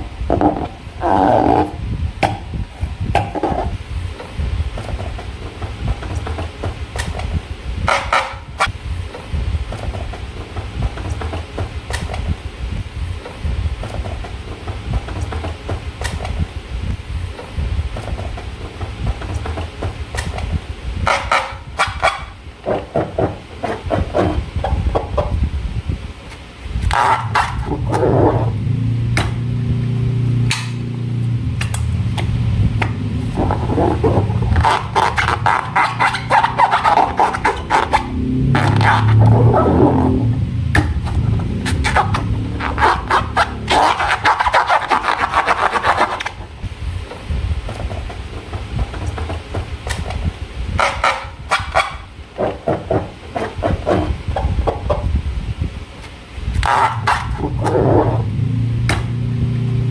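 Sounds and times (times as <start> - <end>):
low buzzing hum: 0.0 - 59.9
hands rumbling on table: 18.0 - 25.4, 31.6 - 46.3.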